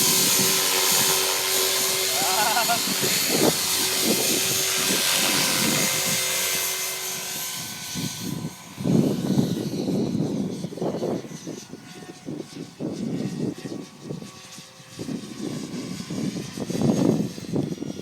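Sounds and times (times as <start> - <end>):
toy helicopter rotor whirring: 0.0 - 18.0.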